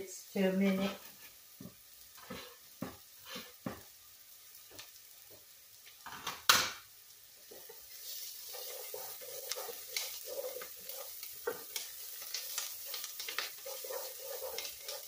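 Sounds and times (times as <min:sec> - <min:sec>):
onions frying in oil: 0:00.0 - 0:15.0
spatula stirring pot: 0:00.7 - 0:03.8, 0:07.4 - 0:15.0.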